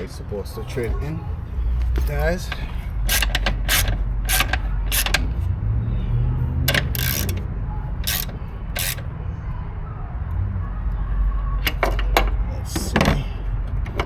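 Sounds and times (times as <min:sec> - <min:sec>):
sharp metallic tool clicks: 0:03.1 - 0:05.2, 0:06.7 - 0:07.4, 0:08.0 - 0:09.0.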